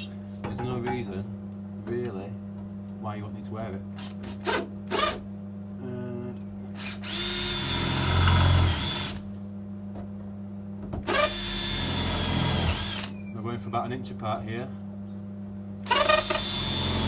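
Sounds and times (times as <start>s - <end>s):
electric drill drilling steel: 4.0s - 5.2s, 6.8s - 9.2s, 11.1s - 13.2s, 15.8s - 17.0s.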